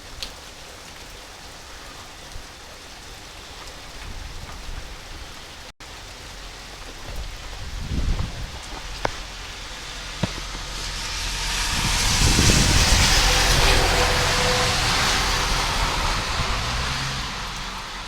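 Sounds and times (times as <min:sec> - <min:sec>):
steady rain: 0:00.0 - 0:18.0
tyre hiss on wet road: 0:05.6 - 0:18.0
low engine rumble: 0:06.0 - 0:18.0.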